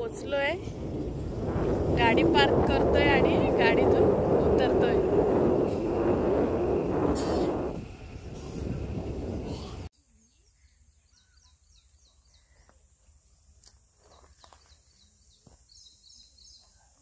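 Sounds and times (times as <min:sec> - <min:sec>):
loud rushing noise: 0:00.6 - 0:09.9
quiet rural ambience: 0:05.9 - 0:17.0.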